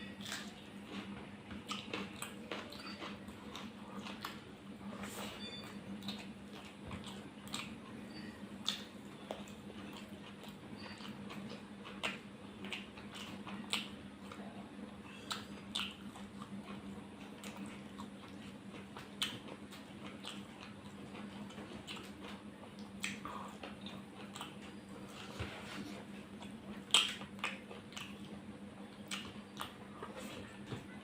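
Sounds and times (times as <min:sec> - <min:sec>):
person chewing food: 0:00.0 - 0:30.7
steady low hum: 0:00.0 - 0:31.0
wet mouth clicks and smacks: 0:26.9 - 0:28.2.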